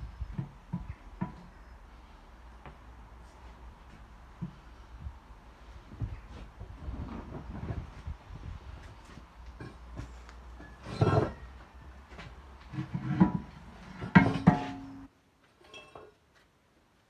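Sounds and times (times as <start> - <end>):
low steady hum: 0.0 - 16.2
hard objects knocking and clanking: 12.7 - 15.1.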